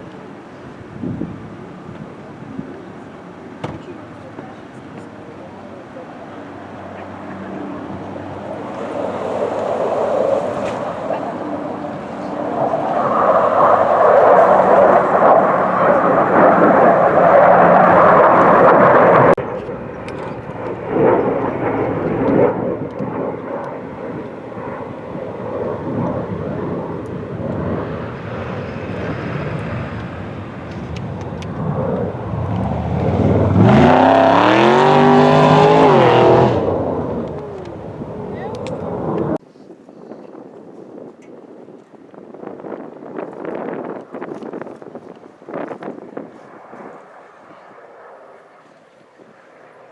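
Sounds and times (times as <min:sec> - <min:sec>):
loud rushing aircraft engine: 0:00.0 - 0:39.4, 0:42.2 - 0:49.9
aircraft engine drone: 0:00.0 - 0:41.1.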